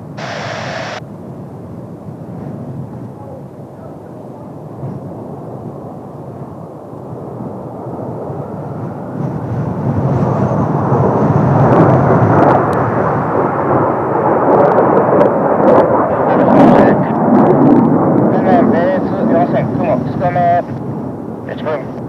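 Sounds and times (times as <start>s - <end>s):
faint high whine: 0.0s - 1.1s
jet engines roaring overhead: 0.0s - 22.0s.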